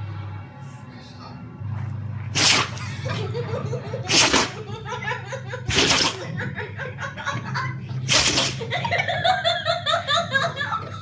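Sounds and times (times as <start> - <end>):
dog sneezing: 2.4 - 3.4, 4.0 - 4.8, 5.7 - 6.3, 8.1 - 9.0.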